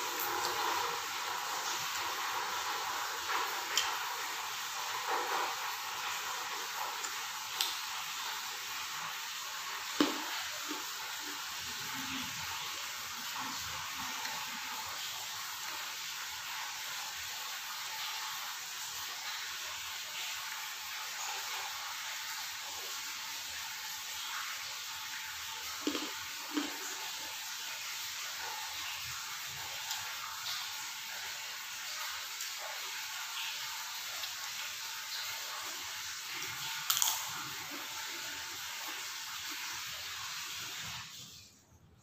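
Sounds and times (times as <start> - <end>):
person chewing: 25.8 - 27.1.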